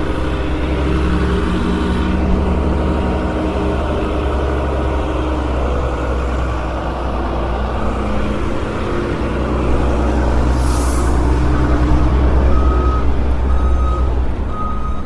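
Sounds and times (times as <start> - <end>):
diesel engine running: 0.0 - 15.0
brief hiss: 10.1 - 12.3.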